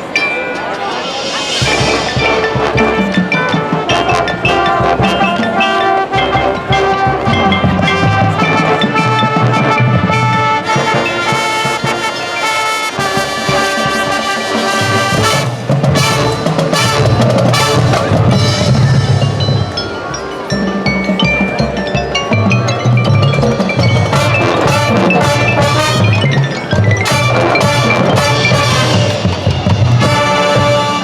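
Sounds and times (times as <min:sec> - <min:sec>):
drums and percussion: 0:00.0 - 0:31.0
brass playing held chords: 0:01.6 - 0:18.6, 0:24.0 - 0:26.4, 0:27.0 - 0:29.3, 0:29.9 - 0:31.0.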